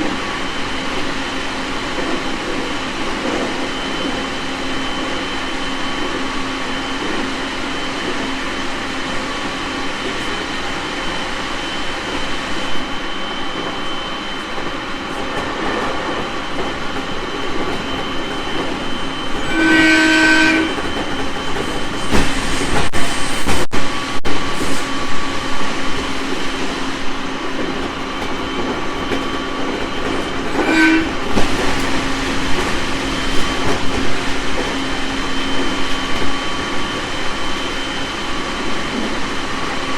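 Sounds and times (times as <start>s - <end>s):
train wheels rolling: 0.0s - 39.9s
train horn: 19.4s - 21.0s, 30.5s - 31.7s.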